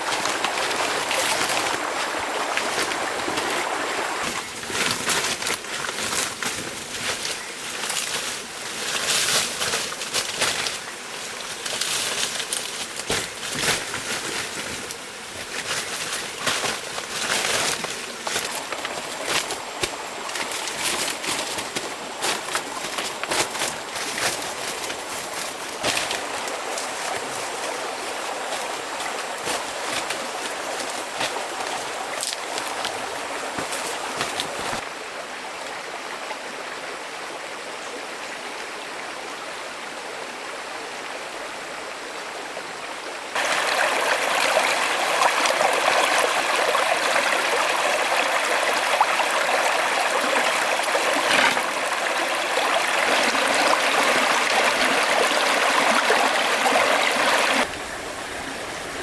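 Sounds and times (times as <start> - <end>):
stream flowing: 0.0 - 59.0.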